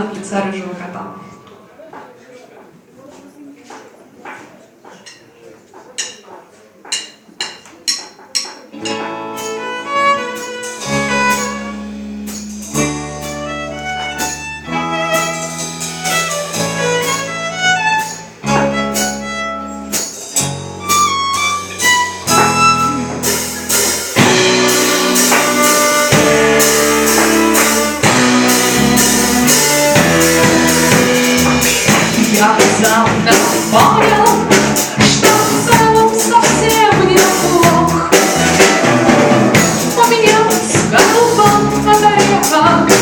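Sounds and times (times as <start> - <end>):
drums: 2.7 - 43.0
guitar: 8.6 - 43.0
bass notes: 8.8 - 43.0
violin melody: 8.8 - 43.0.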